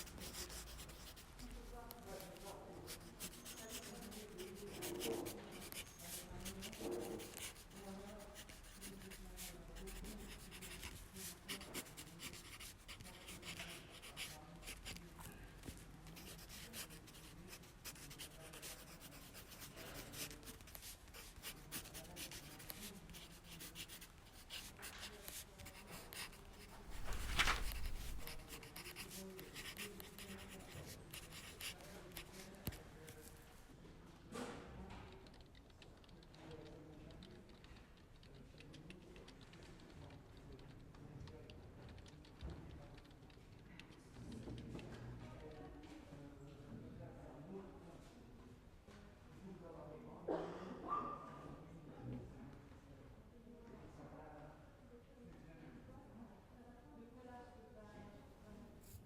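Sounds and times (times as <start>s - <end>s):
pens scratching on paper: 0.0s - 32.8s
hushed voices murmuring: 0.0s - 59.0s
paper rustling: 26.6s - 28.6s.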